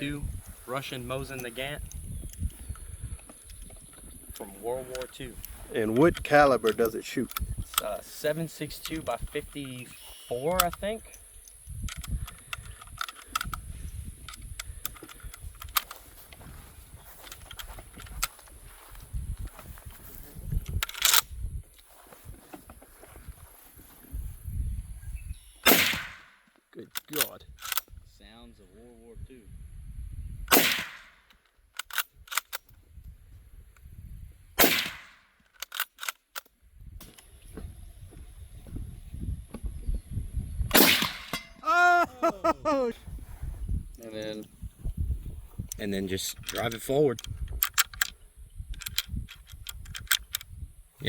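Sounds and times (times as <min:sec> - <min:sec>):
rifle bolt clicking and rattling: 0:03.3 - 0:08.0, 0:10.6 - 0:13.6, 0:14.3 - 0:16.1, 0:17.2 - 0:18.5, 0:20.5 - 0:21.3, 0:26.9 - 0:27.9, 0:30.8 - 0:32.8, 0:34.8 - 0:37.2, 0:45.7 - 0:50.5
rifle shot: 0:25.6 - 0:26.4, 0:30.5 - 0:31.2, 0:34.6 - 0:35.3, 0:40.7 - 0:41.5.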